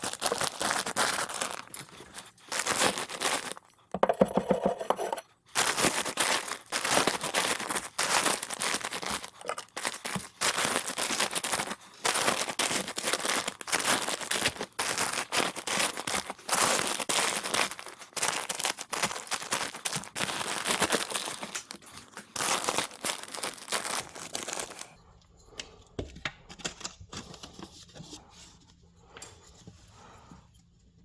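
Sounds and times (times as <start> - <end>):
sheet crinkling and tearing: 0.0 - 3.6, 5.6 - 25.0.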